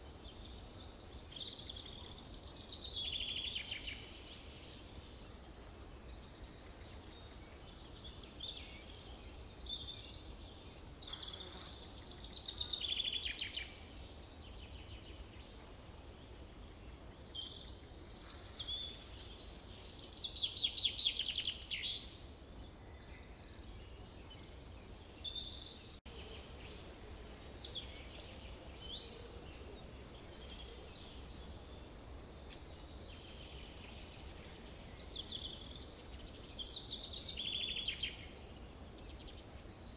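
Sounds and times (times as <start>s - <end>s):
steady low background hiss: 0.0s - 39.9s
birds calling and singing: 16.8s - 39.9s.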